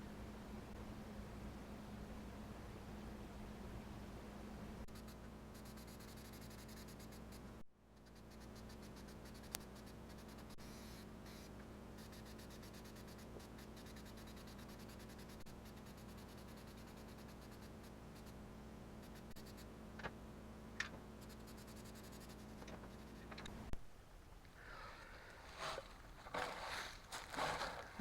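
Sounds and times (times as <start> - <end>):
paint brush strokes: 25.2 - 28.0.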